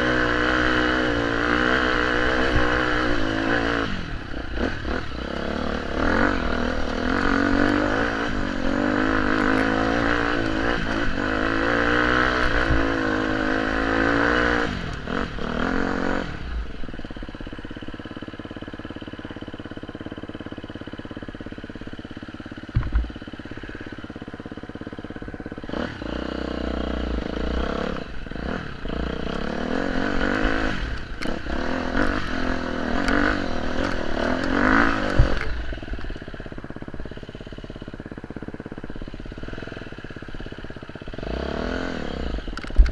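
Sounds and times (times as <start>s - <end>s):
motorcycle engine revving: 0.0s - 42.9s
single knock: 22.7s - 23.1s.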